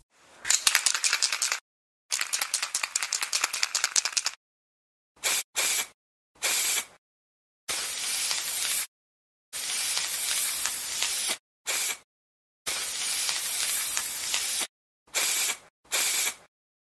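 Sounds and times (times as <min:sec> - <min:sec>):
spray can ball rattling: 0:00.5 - 0:04.4, 0:08.0 - 0:08.9, 0:09.6 - 0:11.9, 0:12.9 - 0:14.7
aerosol spray hissing: 0:05.2 - 0:06.9, 0:07.7 - 0:08.9, 0:09.6 - 0:12.0, 0:12.7 - 0:16.5.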